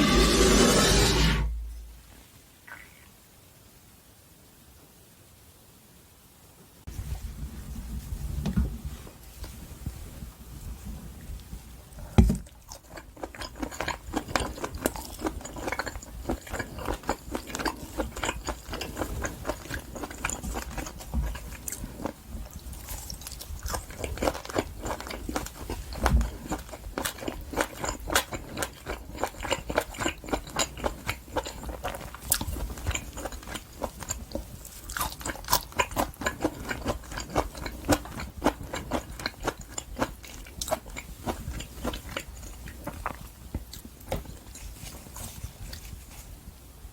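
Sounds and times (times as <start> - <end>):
chewing steak: 12.4 - 46.3.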